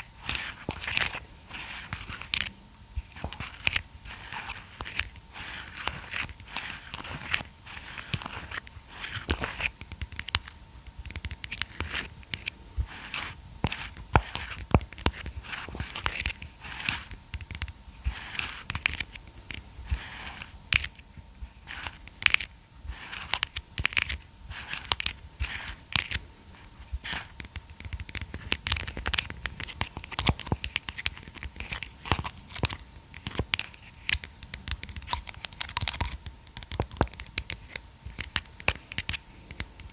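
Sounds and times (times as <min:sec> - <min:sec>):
plastic massage roller clicking: 0:27.0 - 0:39.9.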